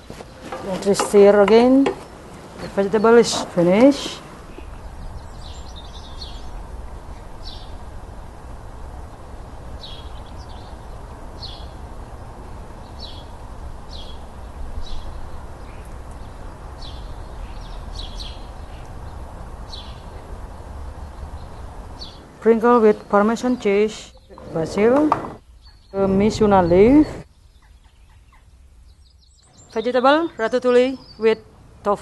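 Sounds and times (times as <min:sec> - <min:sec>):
low outdoor rumble: 0:00.0 - 0:32.0
high bird chirps: 0:25.4 - 0:30.4.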